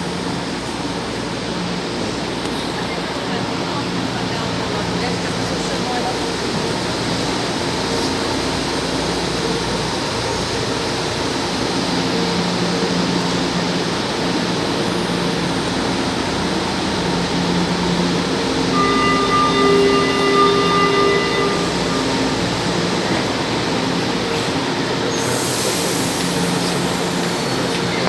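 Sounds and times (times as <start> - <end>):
station and tunnel rushing noise: 0.0 - 28.0
train whining tones: 0.0 - 28.0.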